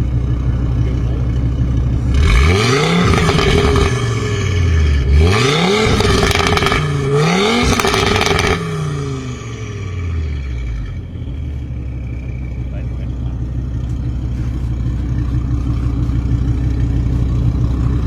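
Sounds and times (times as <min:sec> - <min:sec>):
car engine revving with crackle: 0:00.0 - 0:18.0.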